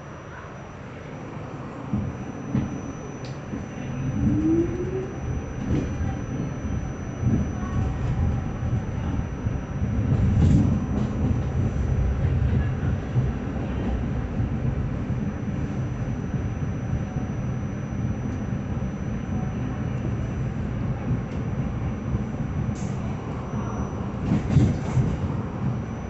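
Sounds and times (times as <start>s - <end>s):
subway train wheels rumbling: 0.0s - 26.0s.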